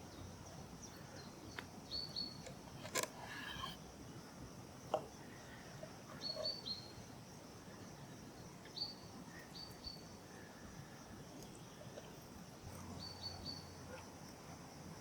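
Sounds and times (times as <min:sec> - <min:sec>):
birds chirping: 0:04.9 - 0:07.0.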